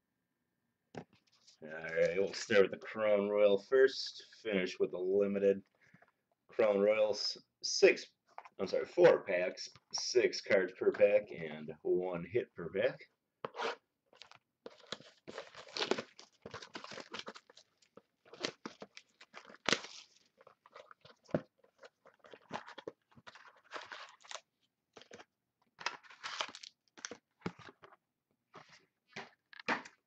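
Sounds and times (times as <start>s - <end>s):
packaging crinkling and tearing: 14.2s - 27.8s.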